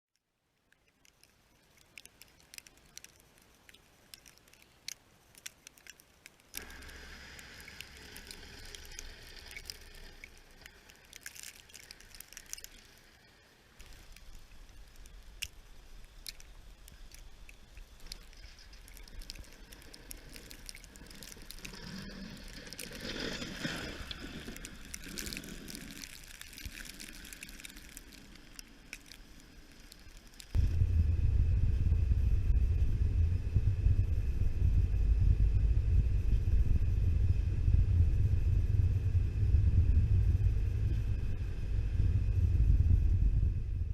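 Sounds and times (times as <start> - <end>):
soft ticks: 0.1 - 30.6
low steady rumble: 0.4 - 43.9.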